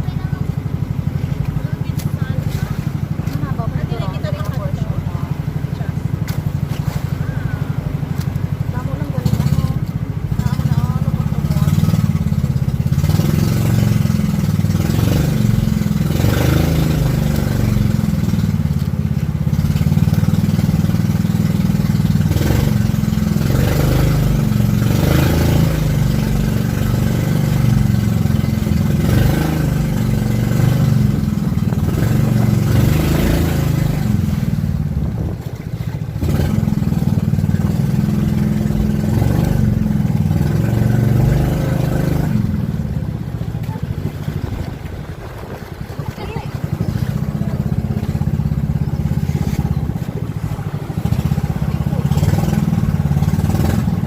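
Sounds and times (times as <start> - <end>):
motorboat engine droning: 0.0 - 54.0
rushing noises: 24.8 - 54.0.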